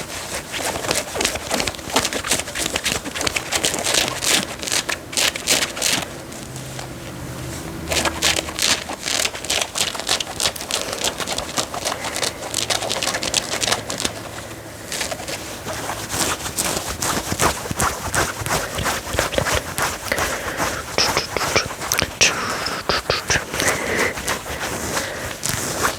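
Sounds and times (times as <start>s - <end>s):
fingernails scratching fabric: 0.0s - 25.9s.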